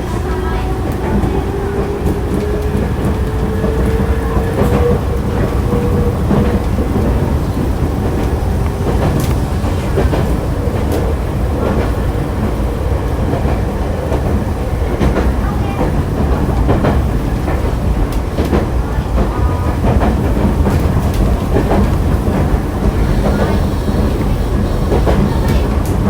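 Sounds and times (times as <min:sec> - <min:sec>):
rail-joint clicks: 0:00.0 - 0:26.0
wheels rumbling on rail: 0:00.0 - 0:26.0
train motor whine: 0:21.6 - 0:26.0.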